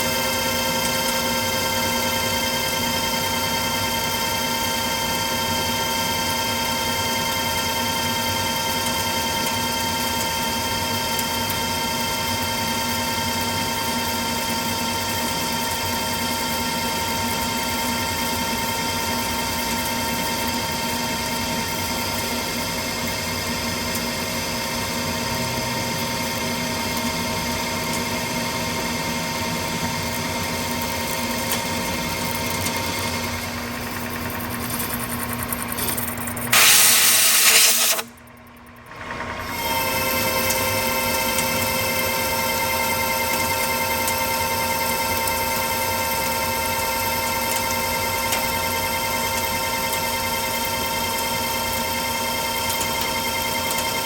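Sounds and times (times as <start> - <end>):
metal lathe whine: 0.0 - 38.0, 39.0 - 54.0
hiss of lathe cutting: 36.5 - 38.1.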